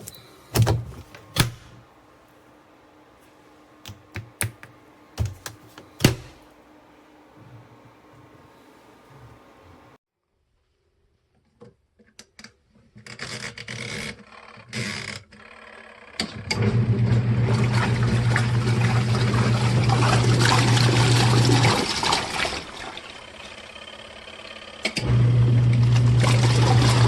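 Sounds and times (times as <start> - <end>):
washing machine motor hum: 0.0 - 10.0, 16.4 - 27.0
clicks and handling noises: 3.2 - 6.5
water sloshing in tub: 17.5 - 23.2.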